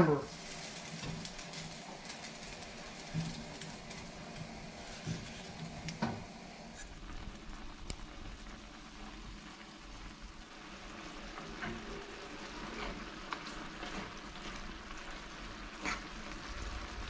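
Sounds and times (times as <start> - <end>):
chicken sizzling in a pan: 0.0 - 17.0.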